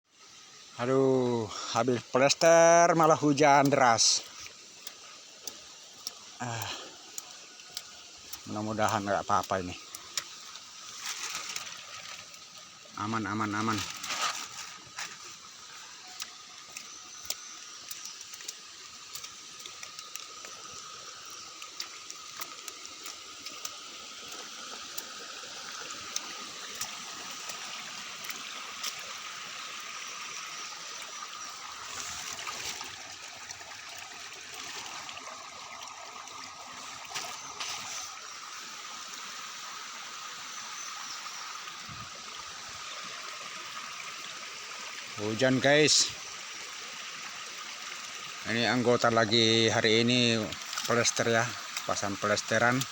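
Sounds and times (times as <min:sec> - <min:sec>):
water trickling: 0:00.1 - 0:52.9
heavy rain hissing: 0:06.3 - 0:16.2.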